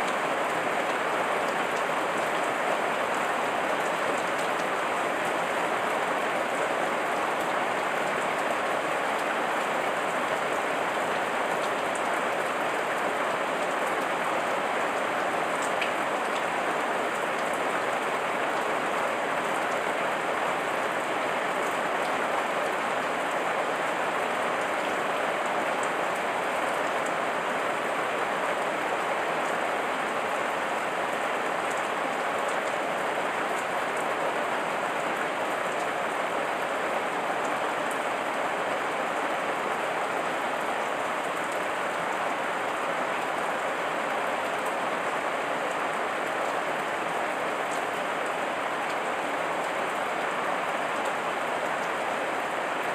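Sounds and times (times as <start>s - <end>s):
heavy rain falling: 0.0s - 52.9s.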